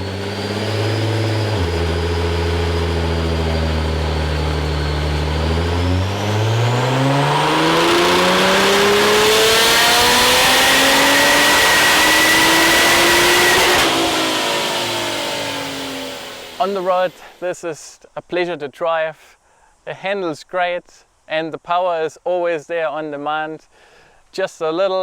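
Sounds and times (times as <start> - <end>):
car engine revving on a dyno: 0.0 - 17.2.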